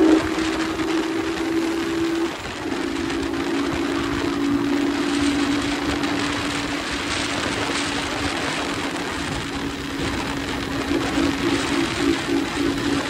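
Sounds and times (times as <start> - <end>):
motorcycle engine droning: 0.0 - 13.0
wind rush on microphone: 0.0 - 13.0.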